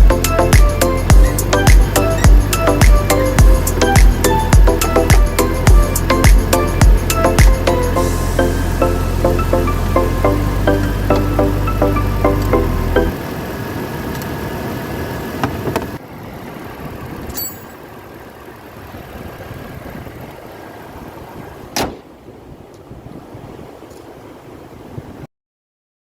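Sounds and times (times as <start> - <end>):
car running noise: 0.0 - 25.0.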